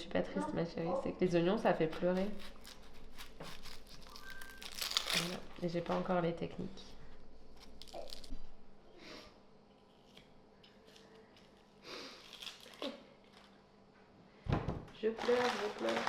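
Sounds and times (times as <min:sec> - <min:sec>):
knife cutting onions: 0:01.8 - 0:05.4.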